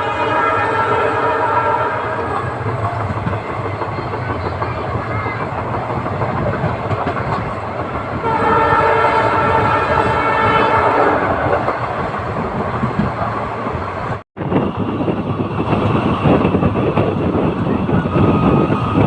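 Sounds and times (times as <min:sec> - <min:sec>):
train horn blast: 0:00.0 - 0:02.6, 0:08.2 - 0:11.4
train coaches rumbling on track: 0:00.0 - 0:19.0.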